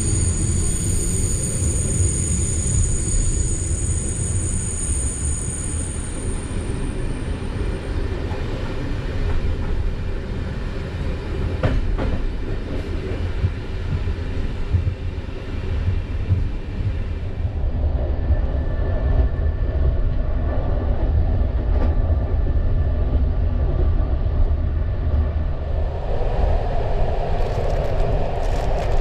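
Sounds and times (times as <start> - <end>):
faint high whine: 0.0 - 8.2
train running rumble: 0.0 - 29.0.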